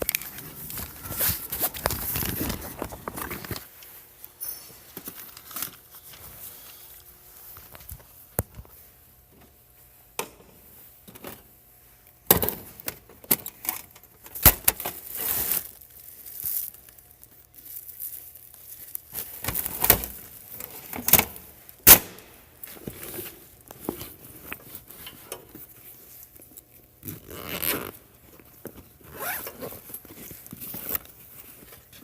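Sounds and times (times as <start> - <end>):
bags rustling and crinkling: 0.0 - 9.0, 14.8 - 21.8, 22.4 - 32.0.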